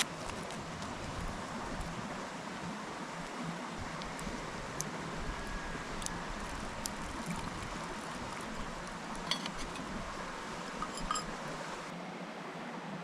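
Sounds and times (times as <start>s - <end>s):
cookware clinking: 9.2s - 9.8s, 10.8s - 11.4s.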